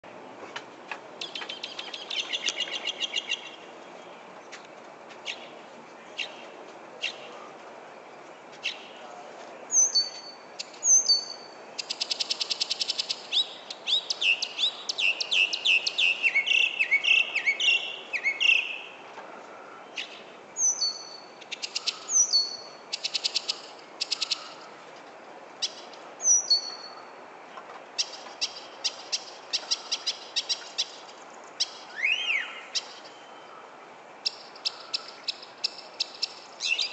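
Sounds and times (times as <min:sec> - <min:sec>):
songbird singing: 0:00.0 - 0:36.9.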